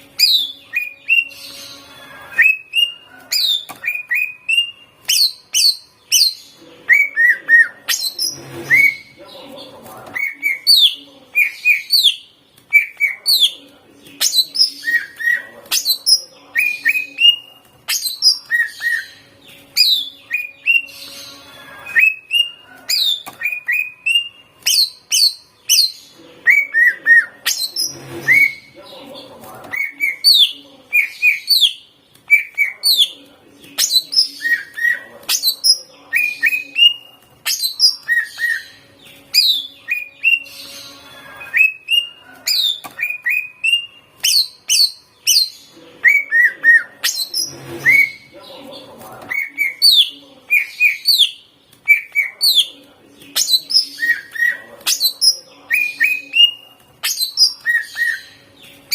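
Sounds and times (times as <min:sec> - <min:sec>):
bird singing whistled phrases: 0:02.3 - 0:09.1.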